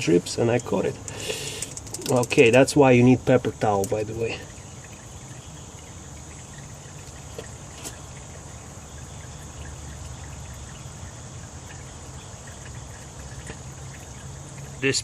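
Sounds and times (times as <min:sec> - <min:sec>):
crickets chirring: 0:00.0 - 0:15.0
oil draining into a pan: 0:00.6 - 0:15.0.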